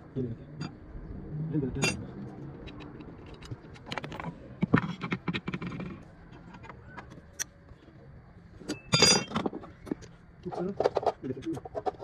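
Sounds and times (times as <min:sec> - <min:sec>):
ringing metallic rattle: 0:08.8 - 0:09.4.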